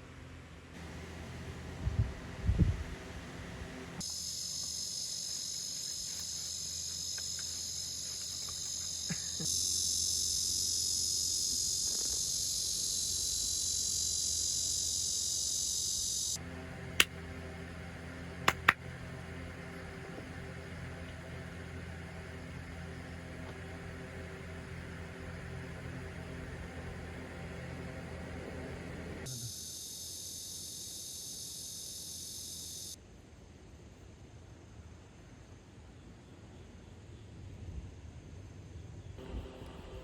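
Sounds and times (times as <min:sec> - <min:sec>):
cicadas buzzing: 0:00.7 - 0:33.0, 0:34.6 - 0:40.0
sharp clicks: 0:18.5 - 0:18.8.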